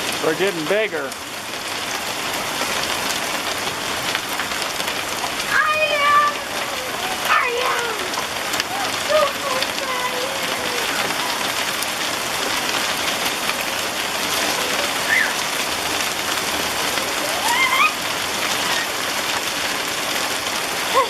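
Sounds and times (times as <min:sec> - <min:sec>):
heavy hail and rain falling: 0:00.0 - 0:21.0
child squealing: 0:05.5 - 0:11.6, 0:14.8 - 0:15.4, 0:17.1 - 0:19.0.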